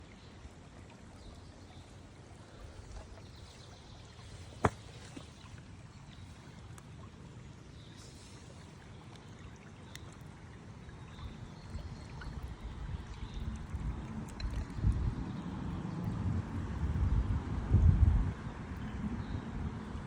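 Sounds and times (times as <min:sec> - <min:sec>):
river water running: 0:00.0 - 0:20.0
wind rumble on microphone: 0:11.2 - 0:20.0.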